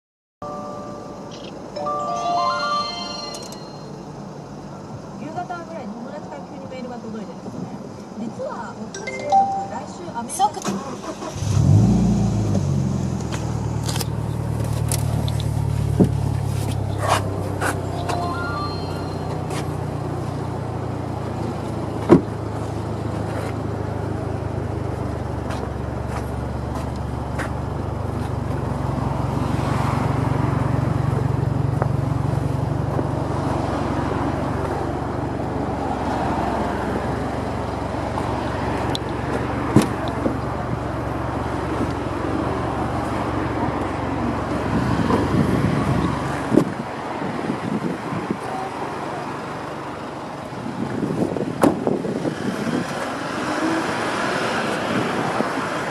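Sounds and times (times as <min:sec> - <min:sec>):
car engine idling: 0:48.5 - 0:51.1.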